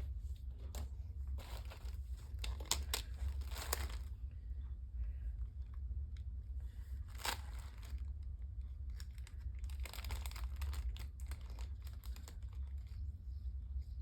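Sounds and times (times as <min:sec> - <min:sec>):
low steady hum: 0:00.0 - 0:14.0
packaging crinkling and rustling: 0:00.4 - 0:04.2, 0:06.8 - 0:13.0.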